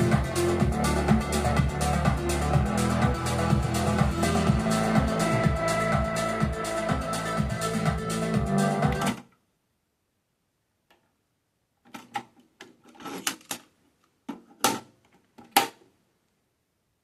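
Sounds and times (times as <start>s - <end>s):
music playing: 0.0s - 9.2s.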